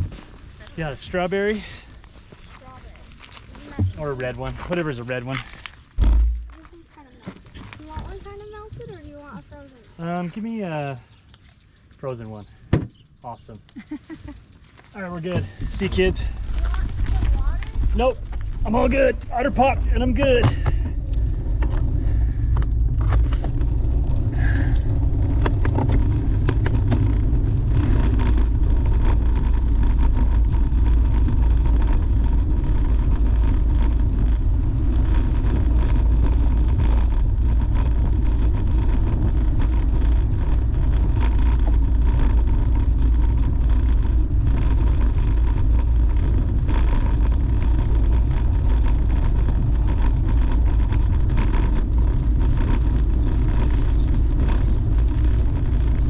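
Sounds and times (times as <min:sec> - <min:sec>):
wind rumble on microphone: 0:00.0 - 0:11.5, 0:15.2 - 0:56.0
bicycle tyre noise: 0:00.0 - 0:56.0
sharp clicks: 0:01.9 - 0:20.2.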